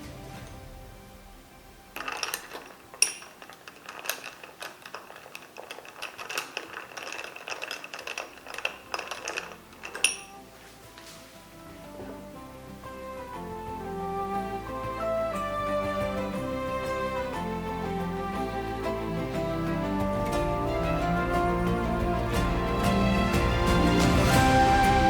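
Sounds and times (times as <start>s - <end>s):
soft background music: 0.0s - 25.0s
ice cubes clinking in glass: 2.0s - 10.4s.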